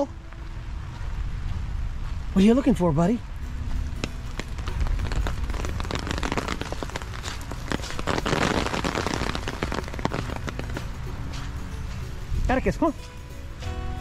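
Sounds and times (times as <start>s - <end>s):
rain pattering: 0.0s - 12.9s
low rumble: 3.2s - 12.8s.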